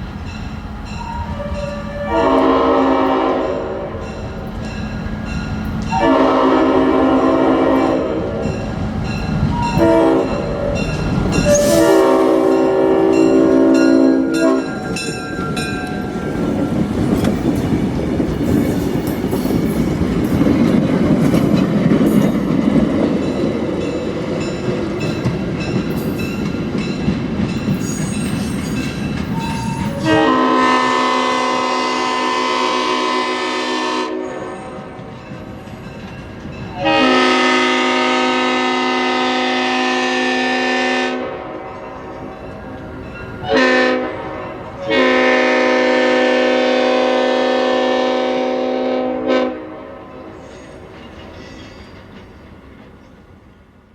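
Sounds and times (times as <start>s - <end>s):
train rumbling and clattering: 0.0s - 53.9s
locomotive horn chord: 1.1s - 4.1s, 5.9s - 8.5s, 9.7s - 14.8s, 30.0s - 34.8s, 36.8s - 41.8s, 43.4s - 50.2s.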